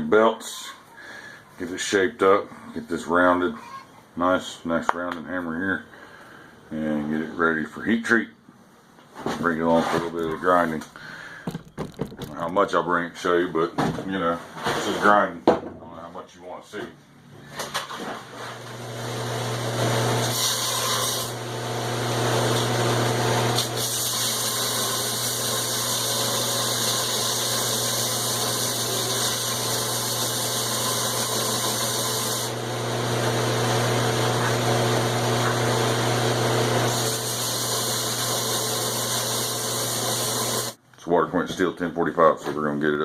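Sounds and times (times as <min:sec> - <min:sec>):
belt grinder motor hum: 0:18.6 - 0:40.8
steel grinding hiss: 0:36.9 - 0:40.8.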